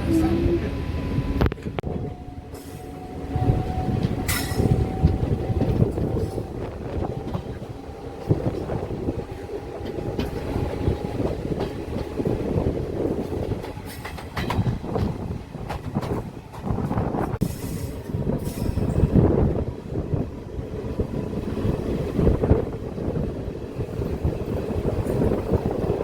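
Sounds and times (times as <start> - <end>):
train rumbling on track: 0.0 - 26.0
wheels clattering over rail joints: 3.8 - 19.2.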